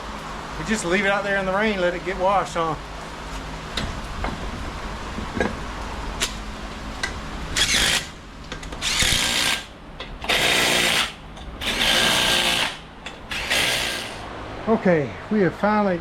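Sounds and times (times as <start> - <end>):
power tool bursts: 7.6 - 8.1, 8.8 - 14.3.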